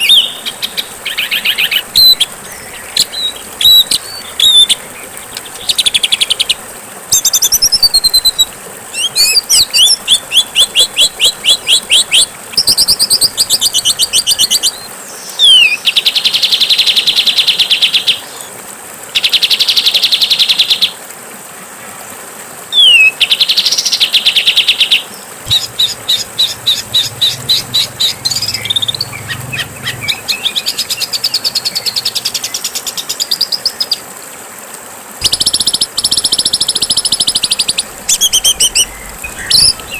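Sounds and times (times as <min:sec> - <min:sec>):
steady hiss: 0:00.0 - 0:17.2, 0:18.2 - 0:39.9
songbird trills and whistles: 0:07.1 - 0:15.8, 0:22.8 - 0:23.2, 0:25.5 - 0:31.9, 0:35.2 - 0:39.9.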